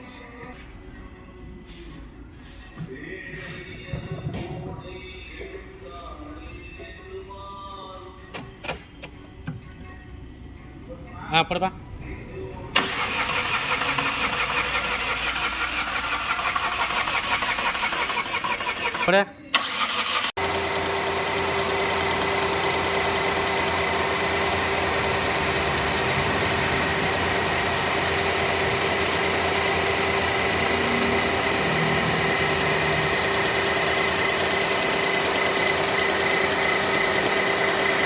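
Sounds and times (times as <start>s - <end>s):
car engine idling: 20.2s - 38.0s.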